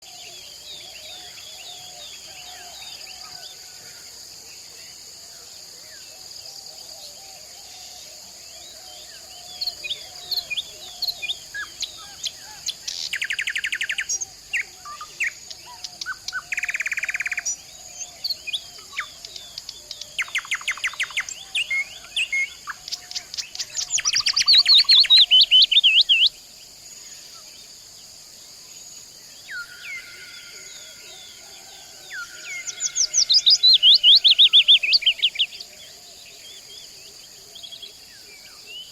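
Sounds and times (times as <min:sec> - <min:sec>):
forest birds calling and singing: 0:00.0 - 0:38.9.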